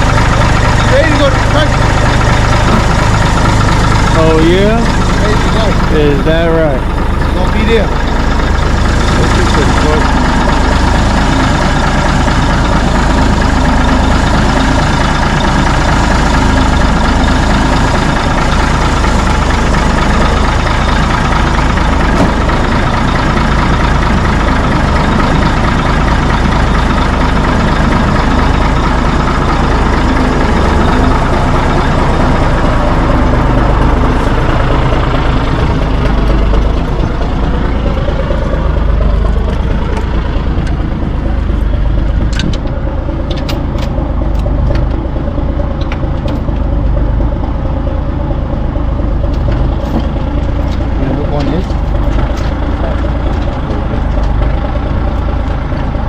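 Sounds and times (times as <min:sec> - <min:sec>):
heavy truck engine running: 0:00.0 - 0:56.0.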